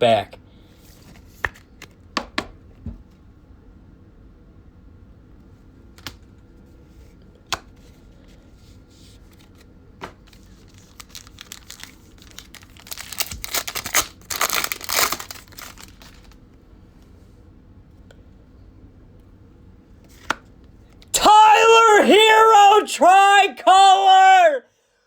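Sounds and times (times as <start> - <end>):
card pack wrapper tearing and crinkling: 10.3 - 16.4.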